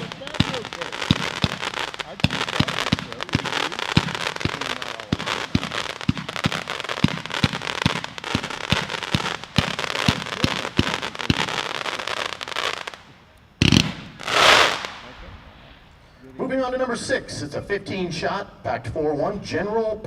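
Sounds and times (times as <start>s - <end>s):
firework launch thumps: 0.0s - 11.8s
sharp firework bang: 0.0s - 11.8s
crackling firework bursts: 0.0s - 16.1s.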